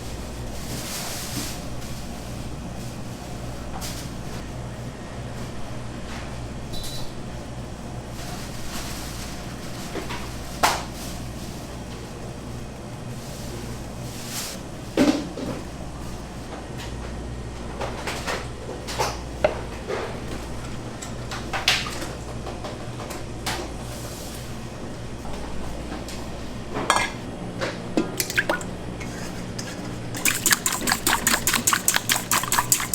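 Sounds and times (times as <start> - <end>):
kitchen utensils knocking and clattering: 28.0 - 32.9.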